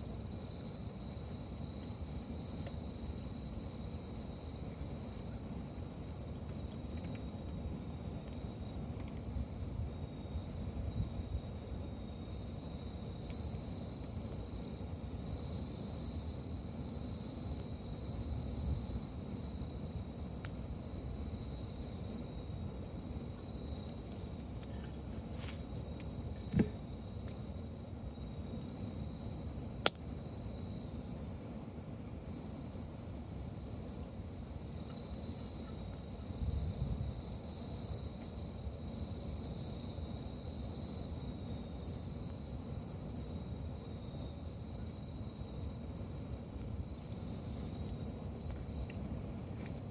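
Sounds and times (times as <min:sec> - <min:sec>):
night insects chirping: 0:00.0 - 0:49.9
campfire crackling: 0:29.2 - 0:30.3.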